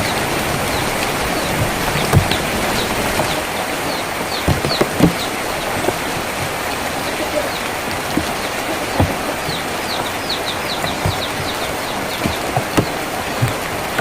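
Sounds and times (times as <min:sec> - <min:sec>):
rain on a tin roof: 0:00.0 - 0:14.0
small birds chirping: 0:00.0 - 0:14.0
drops knocking on metal: 0:04.3 - 0:06.7, 0:07.9 - 0:14.0.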